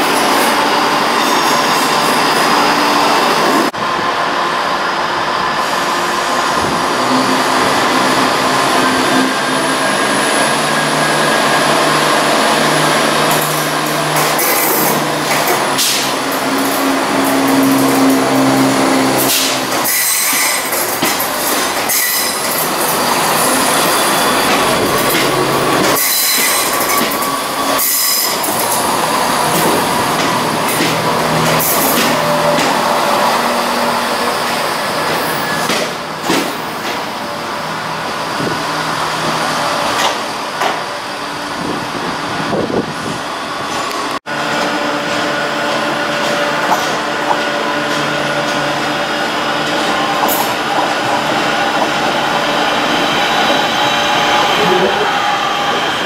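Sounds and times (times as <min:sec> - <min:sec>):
diesel train passing: 0:00.0 - 0:56.0
electric train approaching: 0:00.0 - 0:56.0
train wheels squealing and clattering: 0:07.9 - 0:37.1, 0:49.6 - 0:56.0.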